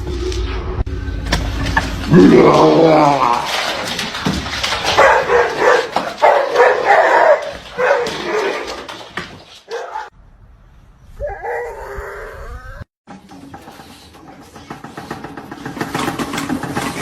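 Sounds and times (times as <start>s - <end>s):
dog barking: 4.9s - 8.7s, 9.7s - 10.1s.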